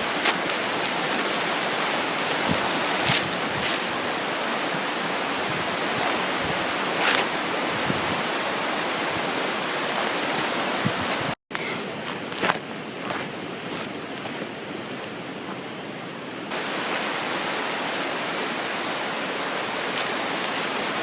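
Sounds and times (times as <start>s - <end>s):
river rushing: 0.0s - 11.4s, 16.5s - 21.0s.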